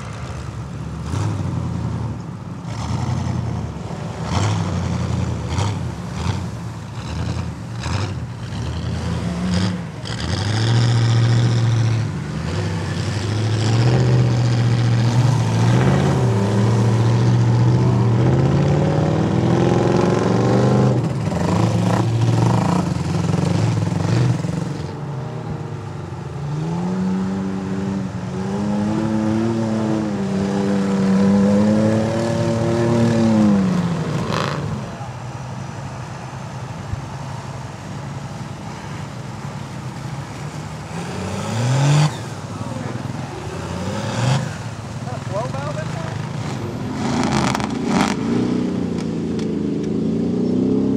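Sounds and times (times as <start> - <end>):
off-road vehicle engine revving: 0.0 - 50.9.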